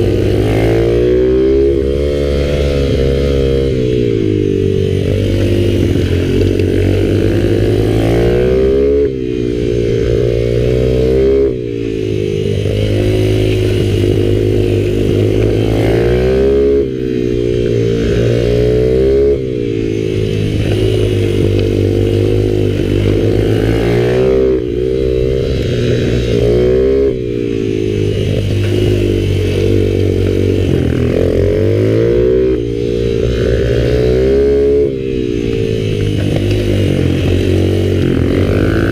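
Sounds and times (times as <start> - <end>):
minibike engine revving: 0.0 - 38.9.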